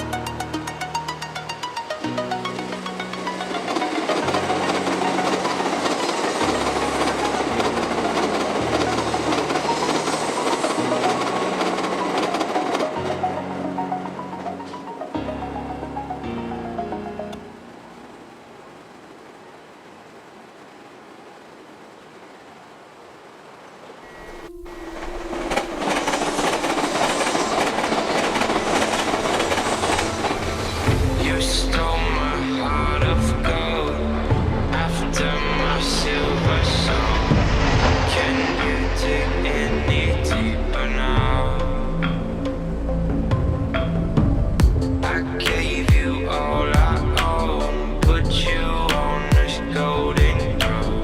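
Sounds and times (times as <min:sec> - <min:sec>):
rail clatter: 0:00.0 - 0:15.2, 0:24.1 - 0:51.0
music: 0:00.0 - 0:17.8, 0:24.0 - 0:51.0
high-speed train rushing past: 0:00.0 - 0:20.5, 0:23.9 - 0:51.0
background music with low bass: 0:30.4 - 0:51.0.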